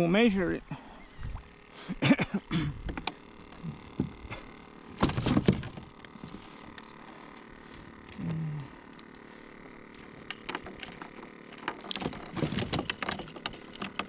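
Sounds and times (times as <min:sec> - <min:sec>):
gear clattering on kayak: 0:02.7 - 0:14.0.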